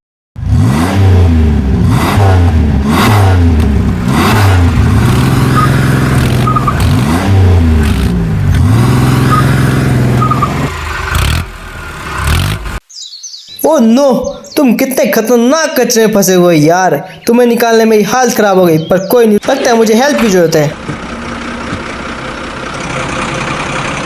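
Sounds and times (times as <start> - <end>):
truck engine revving hard: 0.4 - 12.8, 19.4 - 24.0.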